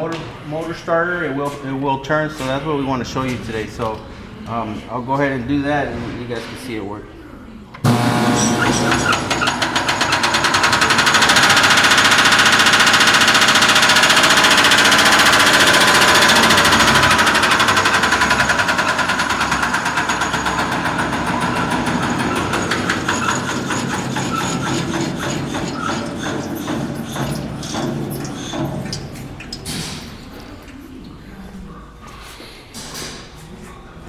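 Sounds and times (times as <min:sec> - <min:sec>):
compressor pulsing rhythmically: 0:07.8 - 0:32.4.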